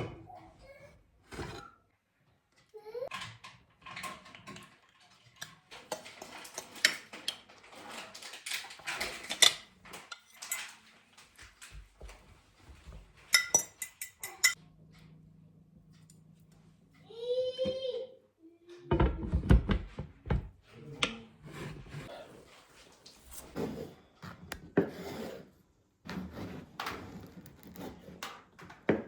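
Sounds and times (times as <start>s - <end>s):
dishes and cutlery clinking: 3.1s - 11.8s, 13.2s - 14.6s.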